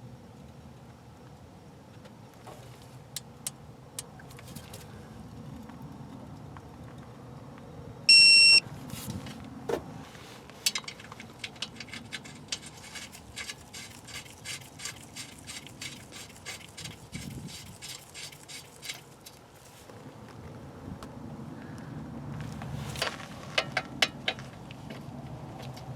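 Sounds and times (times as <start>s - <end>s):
loud electronic beep: 8.1s - 8.6s.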